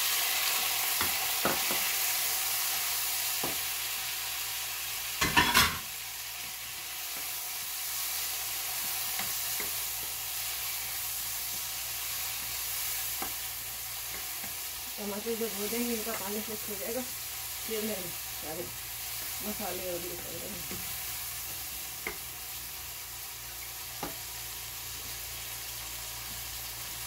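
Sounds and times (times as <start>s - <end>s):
tomatoes sizzling in hot oil: 0.0s - 27.0s
spatula scraping and tapping: 8.8s - 10.2s, 13.1s - 14.6s, 20.6s - 22.3s, 24.0s - 24.2s.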